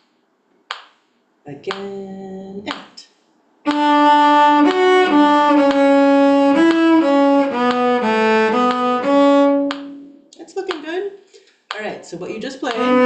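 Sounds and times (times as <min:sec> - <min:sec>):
violin notes: 0:03.6 - 0:10.4, 0:12.5 - 0:13.0.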